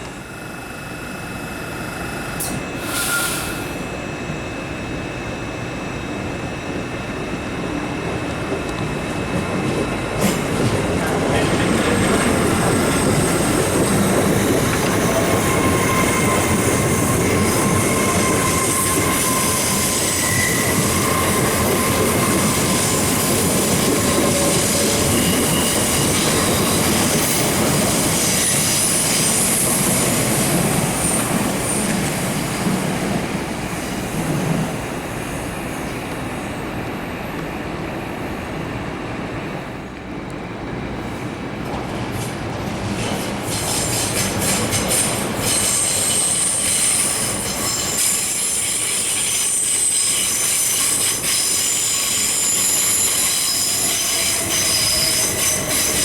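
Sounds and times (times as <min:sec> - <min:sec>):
train running noise: 0:00.0 - 0:56.0
train wheels squealing: 0:01.9 - 0:04.0, 0:09.0 - 0:32.6, 0:43.0 - 0:56.0.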